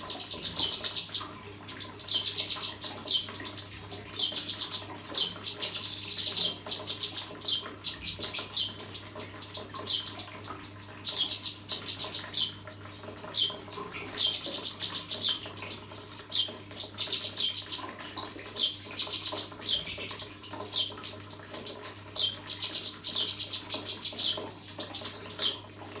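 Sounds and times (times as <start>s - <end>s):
bird chirping trills: 0.0s - 25.8s.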